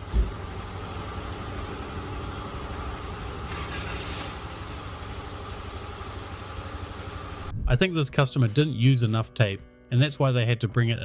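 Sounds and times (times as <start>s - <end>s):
car engine idling: 0.0s - 7.5s
brief hiss: 3.5s - 4.5s.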